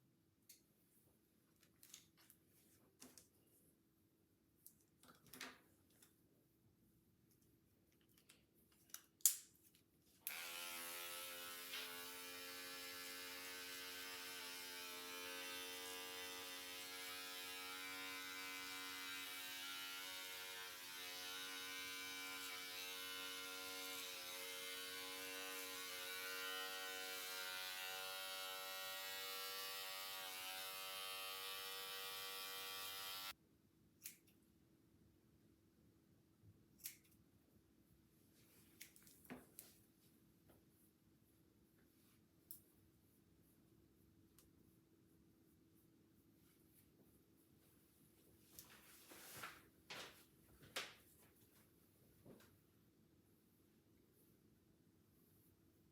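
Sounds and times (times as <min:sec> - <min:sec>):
electric hair clippers buzzing: 0:10.3 - 0:33.4.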